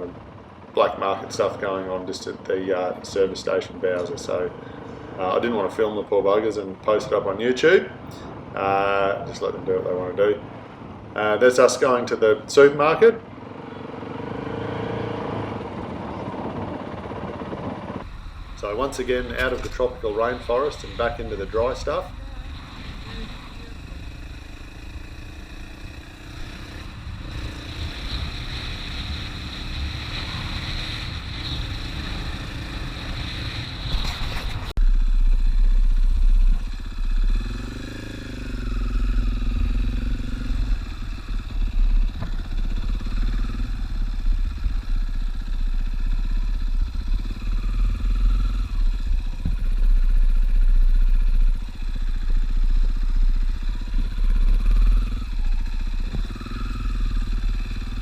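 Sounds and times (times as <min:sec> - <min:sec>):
motorcycle engine running: 0:13.3 - 0:58.0.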